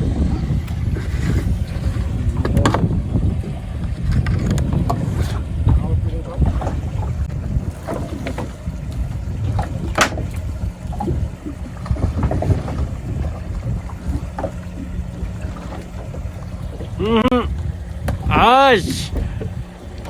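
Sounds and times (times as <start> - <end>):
boat engine running: 0.0 - 20.0
wind on microphone: 0.0 - 20.0.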